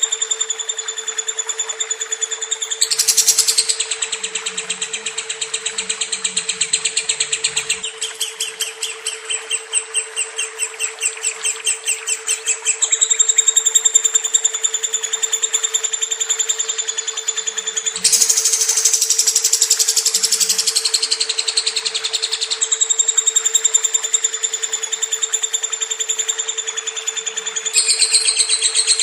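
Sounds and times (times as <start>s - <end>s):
lovebird trilling: 2.4s - 16.6s, 17.4s - 22.4s, 27.0s - 29.0s.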